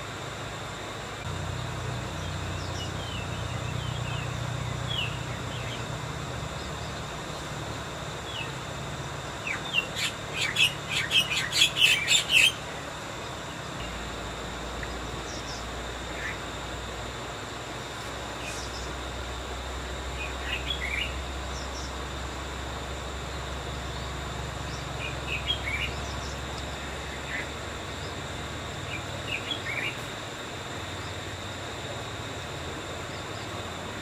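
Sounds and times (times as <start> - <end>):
bird chirping: 2.1 - 7.5, 9.4 - 12.6, 23.9 - 28.2.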